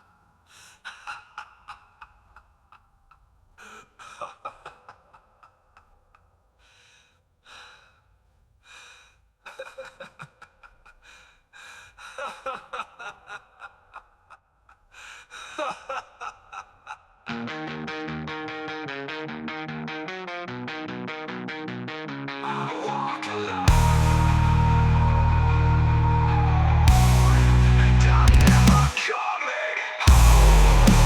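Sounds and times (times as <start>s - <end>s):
distorted guitar metal music: 17.3s - 29.0s, 30.1s - 31.0s.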